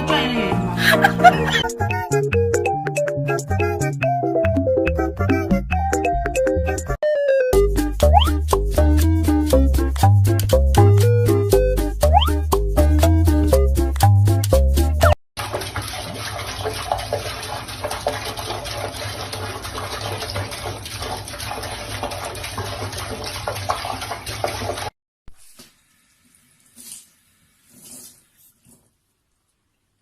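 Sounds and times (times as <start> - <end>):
water running from a tap: 15.4 - 28.5.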